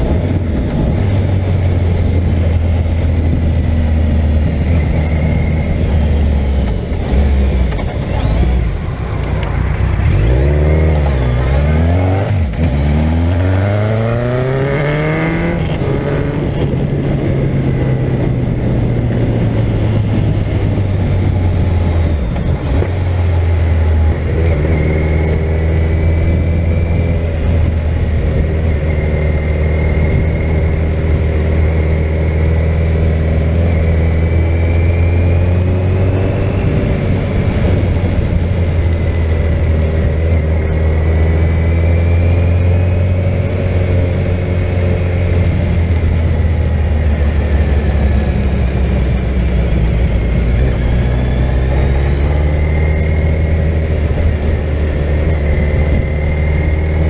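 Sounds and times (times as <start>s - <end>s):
motorcycle engine cruising: 0.0s - 57.0s
wind noise: 0.0s - 57.0s.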